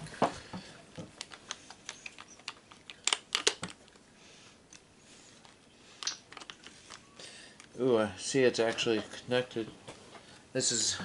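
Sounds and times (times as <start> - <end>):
metal parts clicking and tapping: 1.2 - 3.8.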